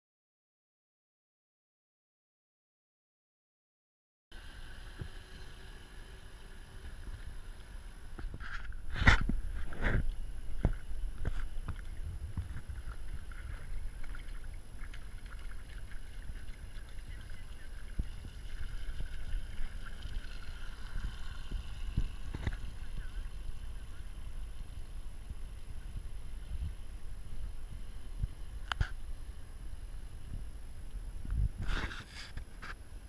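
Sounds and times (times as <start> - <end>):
model boat motor whine: 4.4 - 8.9
low wind rumble: 4.4 - 32.0.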